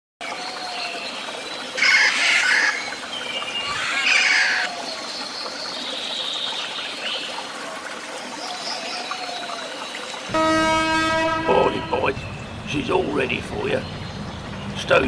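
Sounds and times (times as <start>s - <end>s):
harsh bird calls: 1.8s - 4.8s, 10.3s - 15.0s.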